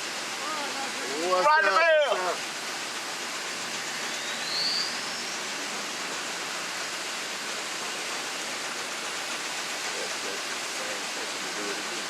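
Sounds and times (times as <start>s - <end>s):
mill machinery rushing hiss: 0.0s - 12.0s
short rising whistle: 3.8s - 5.7s.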